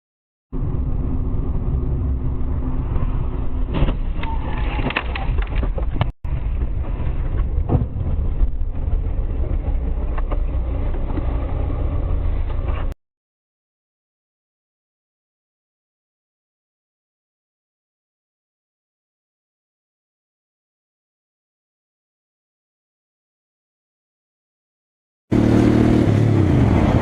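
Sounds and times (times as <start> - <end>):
car road and engine noise: 0.5 - 13.0, 25.3 - 27.0.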